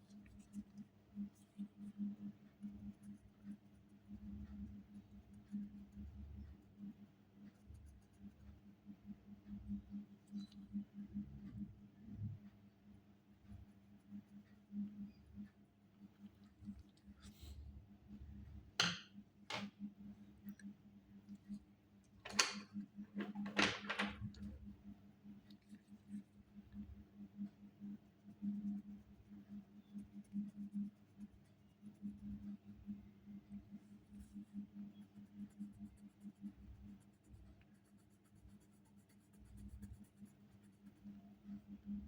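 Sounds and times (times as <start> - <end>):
pencil scratching on paper: 27.5 - 32.9, 33.5 - 41.8.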